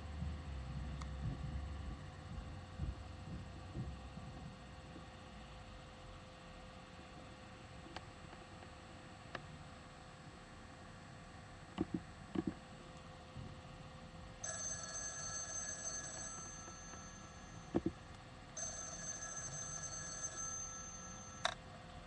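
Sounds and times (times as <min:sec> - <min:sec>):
telephone ringing: 0:14.4 - 0:18.0, 0:18.6 - 0:21.6.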